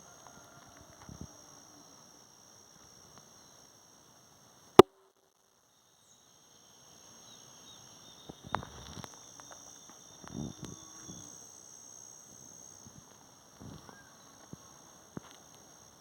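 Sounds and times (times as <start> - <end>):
sharp loud click: 4.8 - 5.0
high-pitched insect drone: 5.8 - 16.0.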